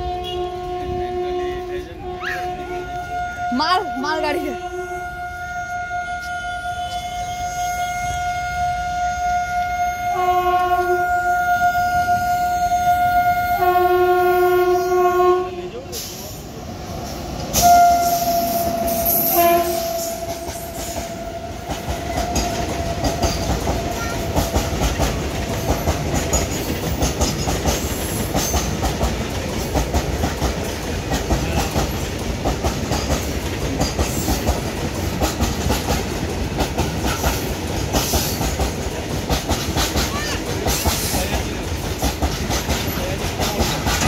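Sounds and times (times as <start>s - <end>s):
locomotive horn: 0.0s - 16.0s, 17.5s - 24.3s
train wheels clattering over rail joints: 19.7s - 44.0s.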